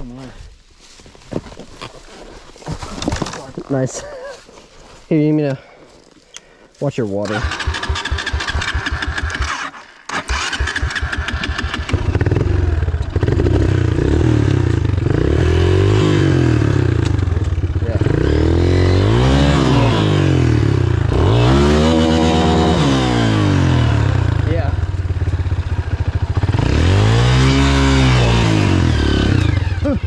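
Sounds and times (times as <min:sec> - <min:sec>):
dirt bike engine revving: 0:07.2 - 0:30.0.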